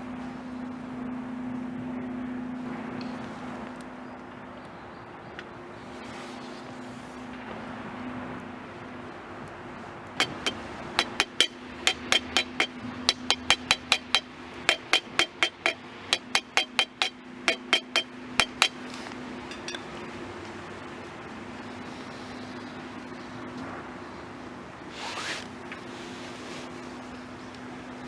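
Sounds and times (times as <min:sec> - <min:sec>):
sharp ringing knocks: 0:10.2 - 0:20.1.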